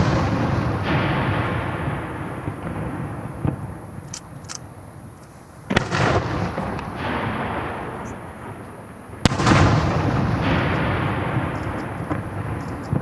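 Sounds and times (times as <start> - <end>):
rolling echo: 0.0 - 13.0
firework shells bursting: 9.2 - 13.0.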